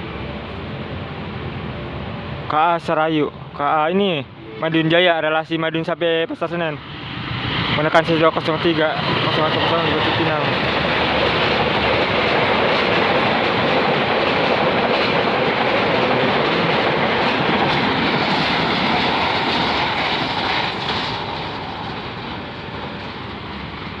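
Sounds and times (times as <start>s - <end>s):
train wheels rushing on rails: 4.8s - 24.0s.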